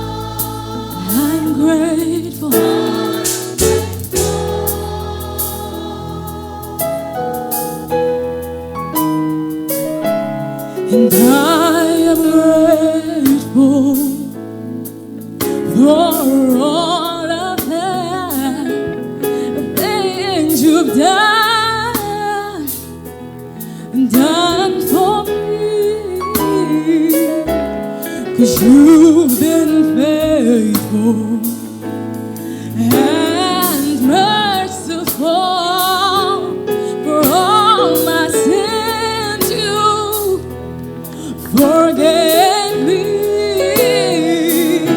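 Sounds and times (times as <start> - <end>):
person singing with vibrato: 0.0 - 7.9, 10.8 - 14.4, 23.6 - 44.9.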